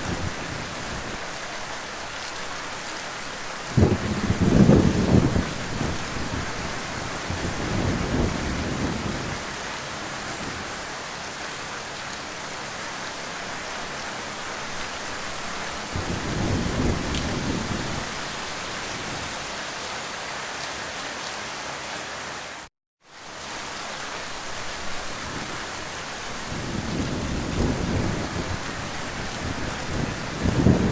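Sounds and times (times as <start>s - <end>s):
heavy rain: 0.0s - 30.9s
thunder rumbling: 3.7s - 9.6s, 15.8s - 19.3s, 26.4s - 30.9s.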